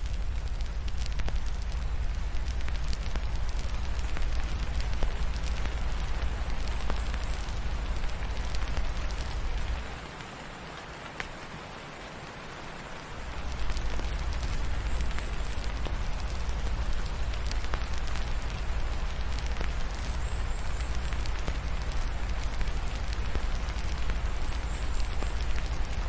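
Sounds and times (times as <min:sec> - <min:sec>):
rain hiss: 0:00.0 - 0:26.0
wood fire crackles and pops: 0:00.0 - 0:26.0.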